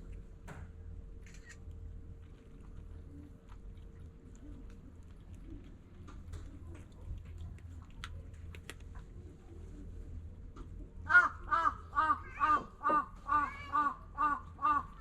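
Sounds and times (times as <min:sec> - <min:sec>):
cat chewing food: 0:00.0 - 0:10.6.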